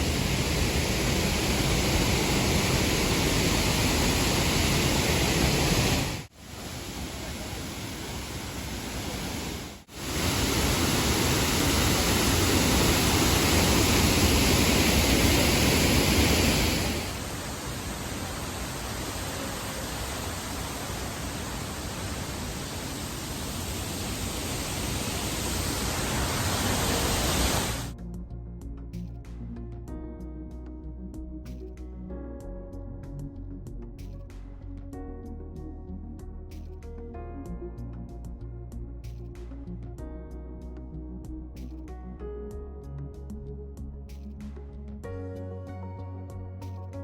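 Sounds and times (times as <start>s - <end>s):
waterfall roaring: 0.0s - 27.9s
music: 27.9s - 47.0s.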